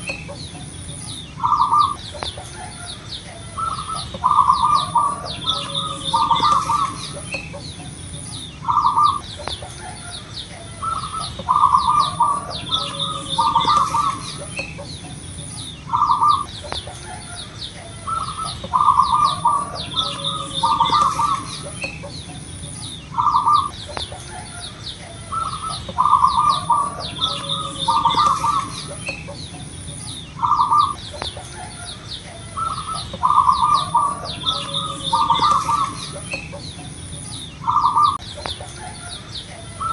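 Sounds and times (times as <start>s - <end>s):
dove cooing: 0.0s - 39.9s
faint chirps: 0.0s - 39.9s.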